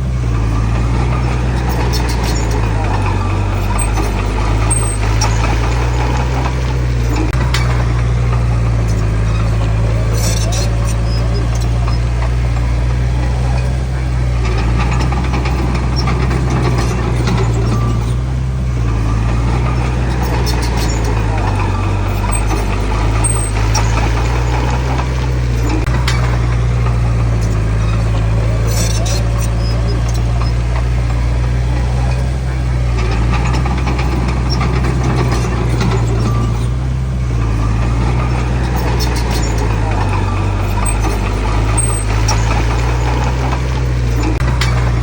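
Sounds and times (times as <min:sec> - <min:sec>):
heavy diesel engine running: 0:00.0 - 0:45.0
clicks and rattles: 0:00.3 - 0:45.0.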